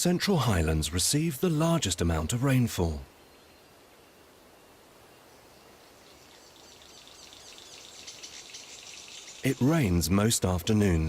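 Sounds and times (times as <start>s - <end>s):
rainforest ambience: 0.0s - 11.0s
fast-pulsing insect trill: 6.0s - 10.0s.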